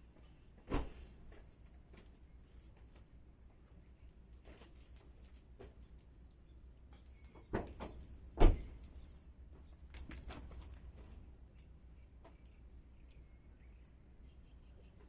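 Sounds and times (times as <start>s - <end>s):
campfire crackling and popping: 9.8s - 11.0s.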